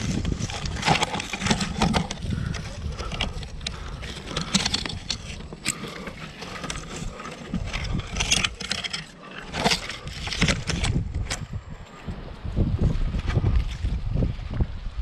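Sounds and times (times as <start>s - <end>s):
scrapes and knocks on rock: 0.0s - 11.6s.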